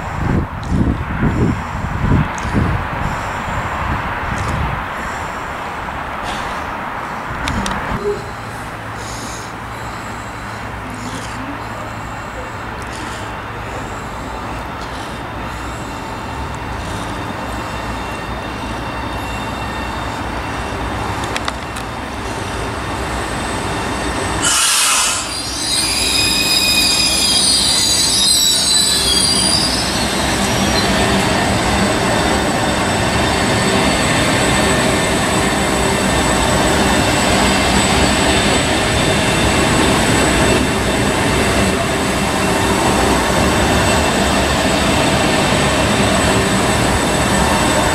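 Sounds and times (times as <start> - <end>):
train passing: 0.0 - 47.9
wheel squeal: 15.5 - 47.9.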